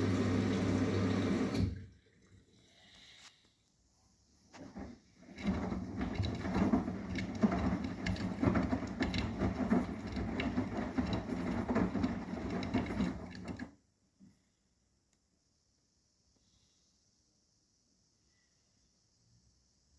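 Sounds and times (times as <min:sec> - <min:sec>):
washing machine drum churning: 0:00.0 - 0:01.9, 0:04.6 - 0:13.7.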